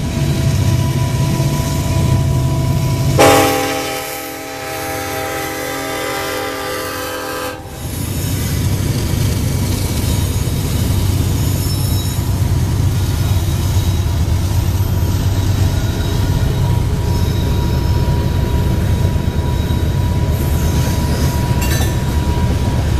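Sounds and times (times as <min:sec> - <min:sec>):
train rolling past: 0:00.0 - 0:22.9
locomotive horn: 0:02.2 - 0:07.8.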